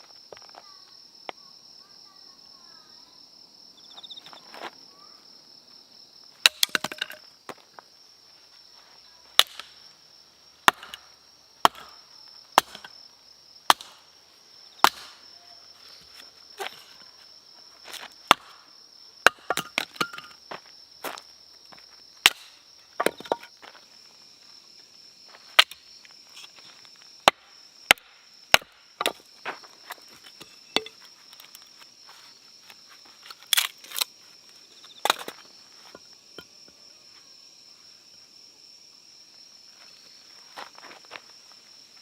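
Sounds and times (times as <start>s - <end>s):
chopping on wood: 6.5s - 7.2s, 9.4s - 9.8s, 10.7s - 12.0s, 12.6s - 13.0s, 13.7s - 14.0s, 14.8s - 15.2s, 18.3s - 18.6s, 22.2s - 23.5s, 27.2s - 29.2s.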